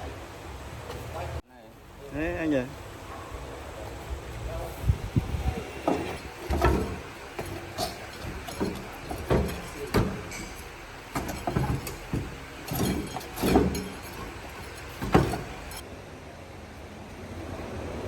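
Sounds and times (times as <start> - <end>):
hand tools knocking on metal: 5.5 - 15.8.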